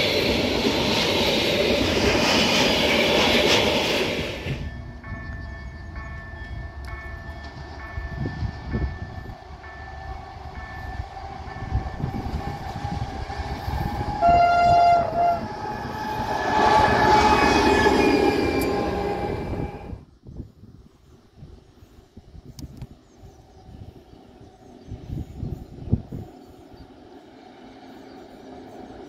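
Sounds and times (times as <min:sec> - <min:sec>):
train passing rumble: 0:00.0 - 0:20.2, 0:23.1 - 0:29.0
level-crossing warning bell: 0:04.6 - 0:12.8
locomotive horn: 0:13.8 - 0:19.8.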